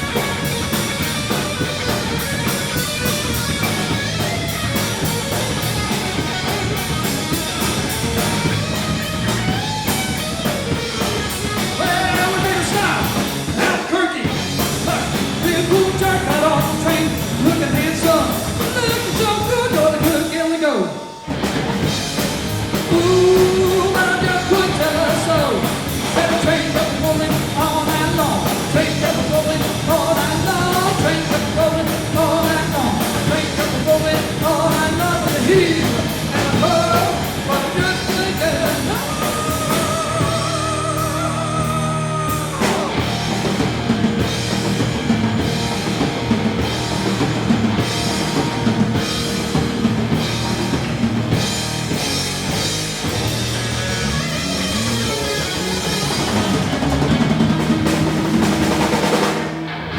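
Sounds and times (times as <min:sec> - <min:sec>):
rock band playing: 0:00.0 - 0:59.9
lead vocal singing: 0:11.4 - 0:21.2, 0:22.7 - 0:44.2.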